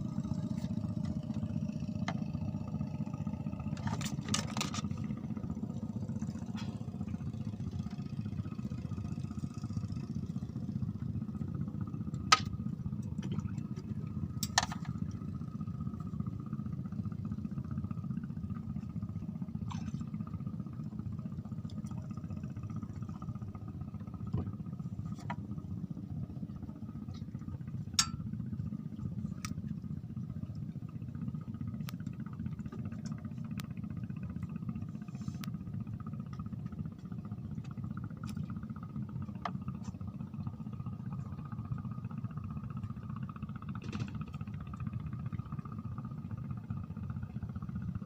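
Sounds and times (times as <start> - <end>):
engine humming: 0.0 - 47.8.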